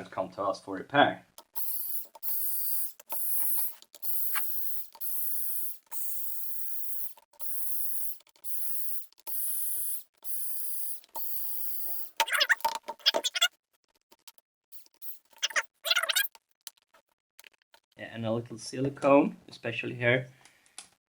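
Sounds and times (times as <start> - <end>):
cordless screwdriver motor bursts: 1.6 - 12.3.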